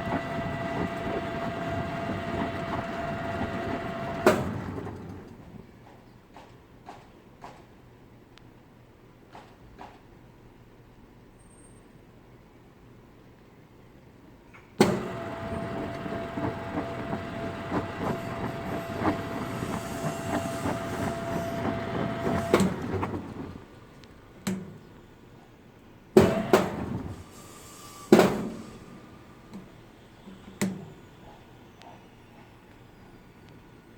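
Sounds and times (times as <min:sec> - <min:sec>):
washing machine whining and rattling: 0:00.0 - 0:05.9, 0:14.8 - 0:24.5, 0:26.2 - 0:32.6.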